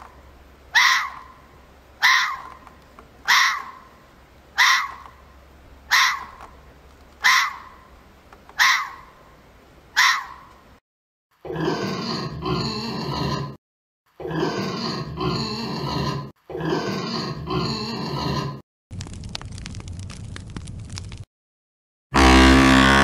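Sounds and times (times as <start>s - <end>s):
fox barking: 0.7s - 1.4s, 2.0s - 2.6s, 3.2s - 3.9s, 4.6s - 5.2s, 5.9s - 6.5s, 7.2s - 7.9s, 8.6s - 9.2s, 10.0s - 10.5s.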